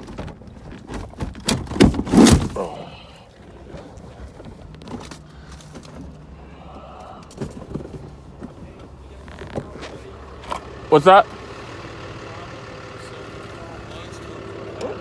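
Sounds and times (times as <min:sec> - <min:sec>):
loud knocks and thuds: 0:00.1 - 0:02.6.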